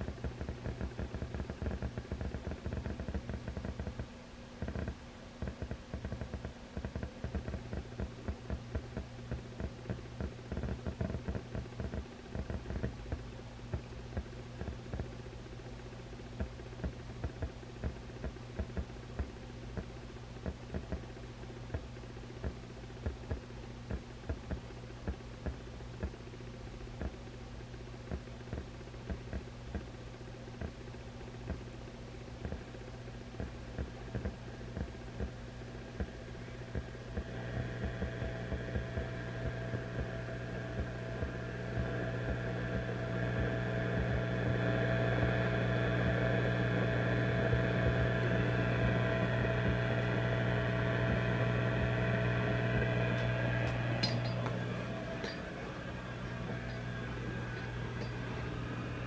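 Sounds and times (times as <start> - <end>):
tube amplifier hum and hiss: 0.0 - 59.0
crackling pops: 33.4 - 59.0.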